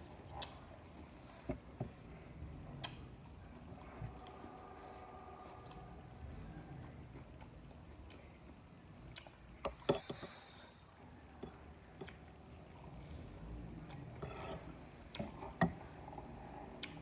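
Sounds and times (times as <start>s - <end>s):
low rumble: 3.6s - 7.2s.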